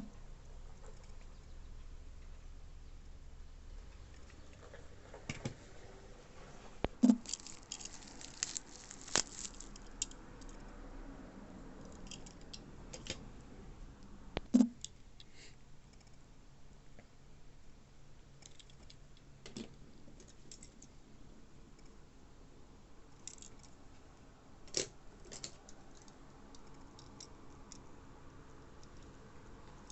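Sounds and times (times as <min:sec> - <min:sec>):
hands handling packaging: 0:06.9 - 0:10.6.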